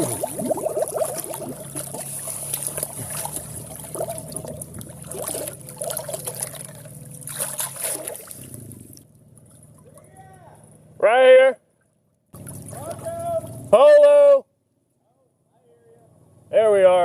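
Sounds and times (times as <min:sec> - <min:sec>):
flood water splashing and gurgling: 0:00.0 - 0:10.0, 0:12.4 - 0:13.7
low hum: 0:00.0 - 0:15.4.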